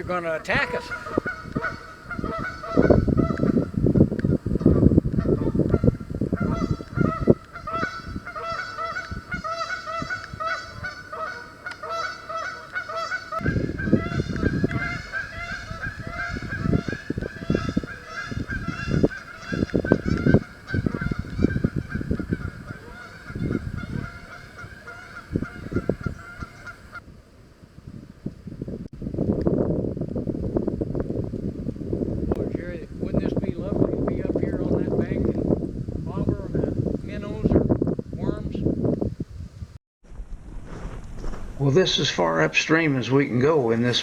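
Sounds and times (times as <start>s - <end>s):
geese honking: 0.0s - 27.0s
low rumbling bursts: 28.7s - 43.6s.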